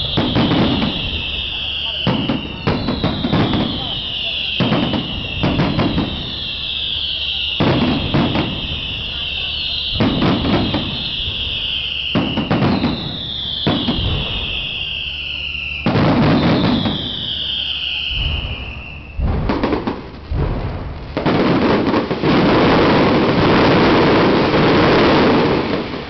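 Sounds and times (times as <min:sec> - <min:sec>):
firework bangs: 0:00.0 - 0:26.0
firework whistle falling: 0:00.0 - 0:26.0.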